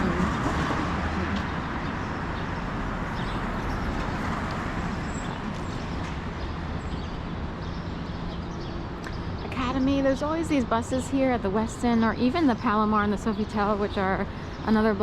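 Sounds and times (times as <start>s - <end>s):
bus engine idling: 0.0s - 1.6s
street traffic noise: 0.0s - 15.0s.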